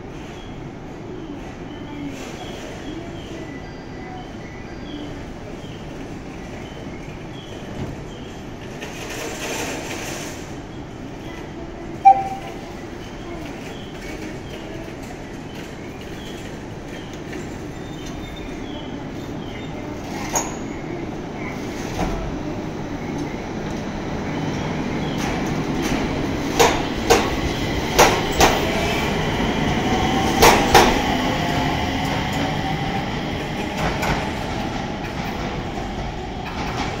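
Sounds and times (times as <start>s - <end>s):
train wheels clacking over rail joints: 25.2s - 28.8s, 33.7s - 37.0s.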